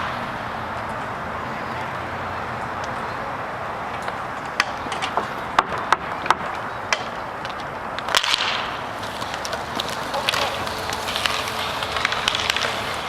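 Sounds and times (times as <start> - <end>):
rink noise hum: 0.0 - 13.0
hockey sticks and puck clacking: 3.8 - 13.0.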